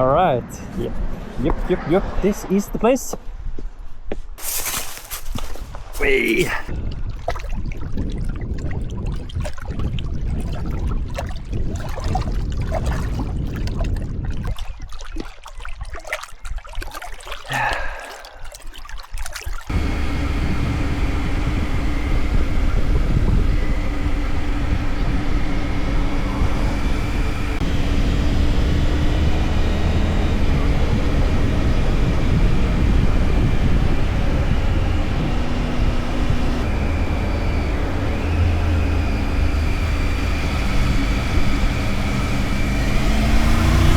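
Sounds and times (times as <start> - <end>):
wind and road noise: 0.0 - 14.9, 19.7 - 43.9
motorcycle engine running: 19.7 - 43.9
steady engine drone: 19.7 - 43.9.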